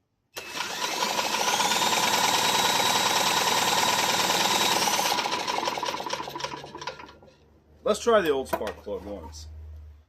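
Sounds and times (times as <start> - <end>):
mower engine cranking: 0.4 - 7.4.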